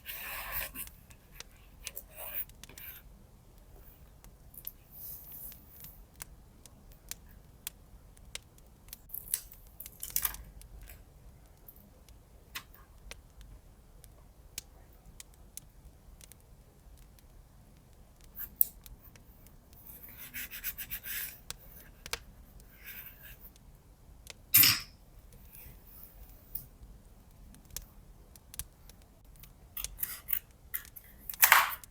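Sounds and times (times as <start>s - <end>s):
light clicks and taps: 0.6s - 24.4s, 25.3s - 31.9s
scratchy strokes on paper: 19.8s - 22.0s.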